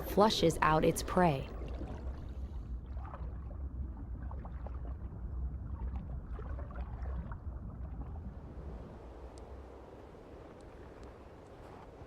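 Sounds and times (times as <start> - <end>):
faint bubbling ticks: 10.5 - 12.0.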